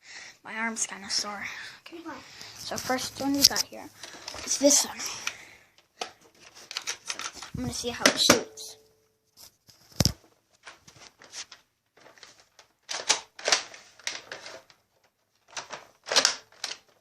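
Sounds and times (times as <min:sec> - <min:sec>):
plastic toy gun clicking: 0:12.8 - 0:14.8, 0:15.5 - 0:17.0.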